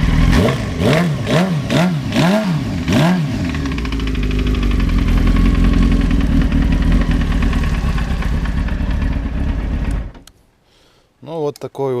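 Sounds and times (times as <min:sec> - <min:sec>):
motorcycle engine idling: 0:02.7 - 0:10.2.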